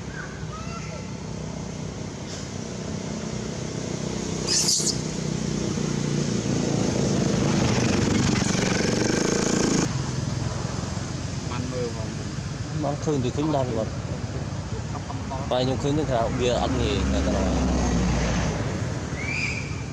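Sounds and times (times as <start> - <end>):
vehicle engine running: 1.0 - 10.0
high-pitched squeal: 4.4 - 5.2.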